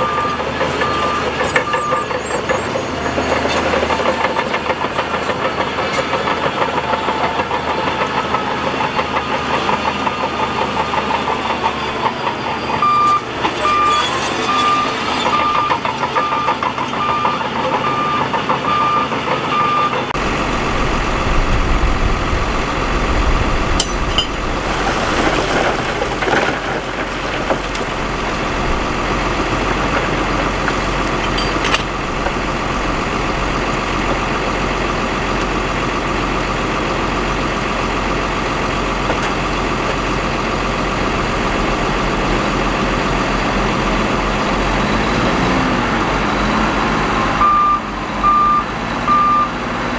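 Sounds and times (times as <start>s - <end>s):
reversing alarm beeping: 0.0s - 3.9s, 11.9s - 21.5s, 47.3s - 49.6s
heavy machinery engine rumble: 0.0s - 49.9s.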